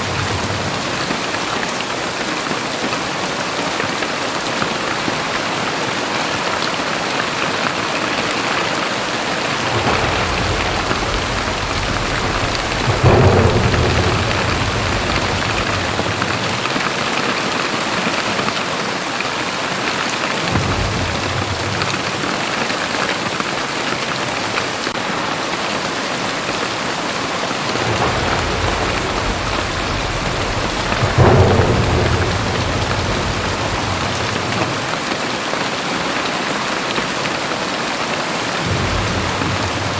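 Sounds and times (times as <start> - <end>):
thunder rumbling: 0.0 - 2.5, 6.8 - 18.5, 20.0 - 35.8, 38.4 - 39.9
thunder claps: 0.0 - 3.5, 4.9 - 37.6, 38.2 - 39.9
heavy rain pouring: 0.0 - 39.9.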